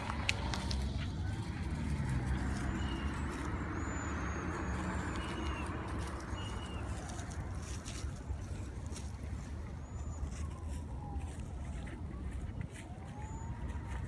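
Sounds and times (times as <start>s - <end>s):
small birds chirping: 1.5s - 10.6s.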